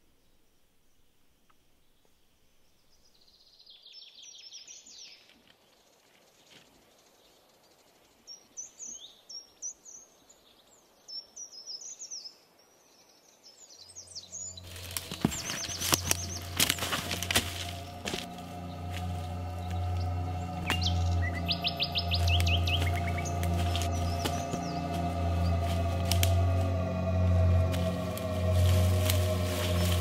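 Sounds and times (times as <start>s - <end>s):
birds chirping: 6.9s - 30.0s
sharp high bird calls: 14.0s - 26.8s
low steady drone: 14.0s - 30.0s.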